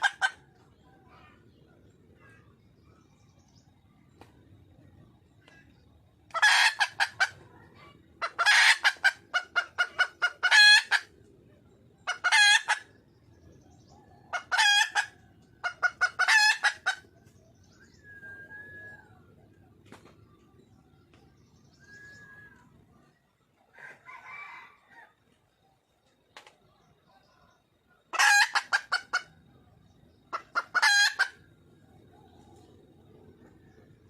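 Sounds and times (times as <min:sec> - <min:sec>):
hen clucking call: 0:00.0 - 0:01.4, 0:06.3 - 0:11.1, 0:12.0 - 0:12.9, 0:14.3 - 0:17.1, 0:28.1 - 0:29.3, 0:30.3 - 0:31.4.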